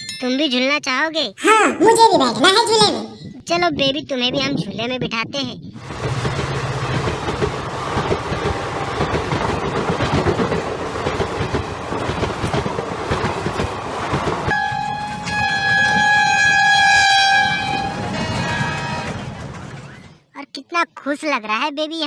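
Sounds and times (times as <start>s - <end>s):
horn blast: 14.5s - 19.6s
rattling clatter: 14.6s - 20.2s.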